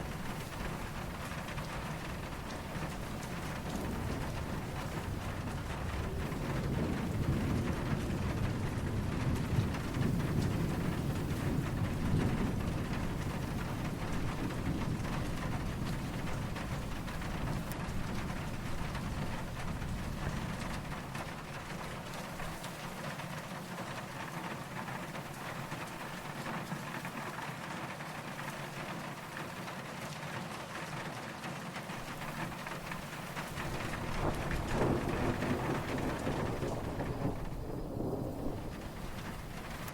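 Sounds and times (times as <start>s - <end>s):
distant thunder rumbling: 0.0s - 29.7s, 31.9s - 39.9s
steady rain falling: 0.0s - 39.9s.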